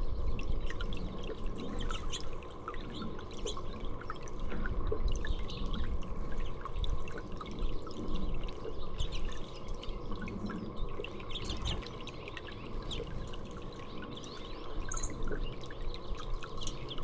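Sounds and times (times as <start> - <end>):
water dripping and trickling: 0.0 - 17.0
small birds chirping: 8.6 - 17.0.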